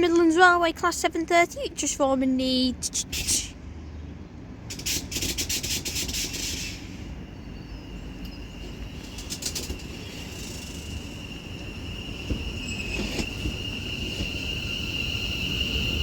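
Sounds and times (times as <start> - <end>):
electric train whine: 4.3 - 16.0.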